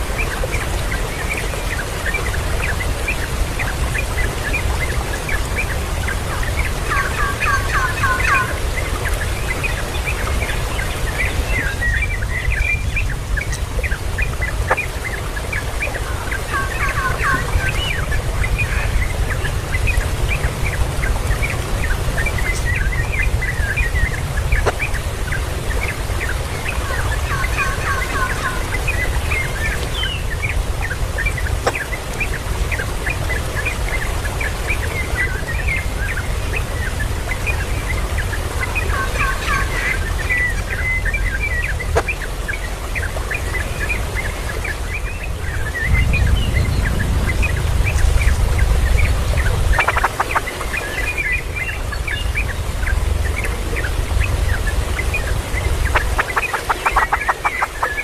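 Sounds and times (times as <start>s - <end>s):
chicks peeping: 49.7s - 50.7s, 55.9s - 57.8s
fowl clucking: 49.8s - 50.5s, 55.9s - 57.8s.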